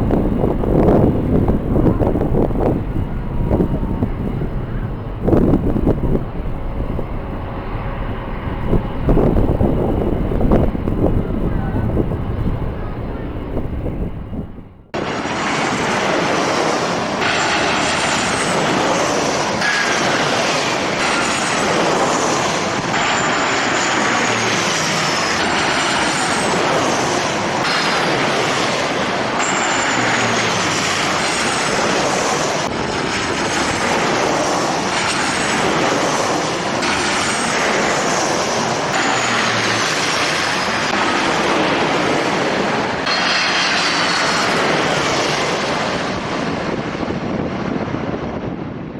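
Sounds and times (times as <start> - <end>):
high whining tones: 0.0 - 15.1
jet engines running loud: 0.0 - 48.9.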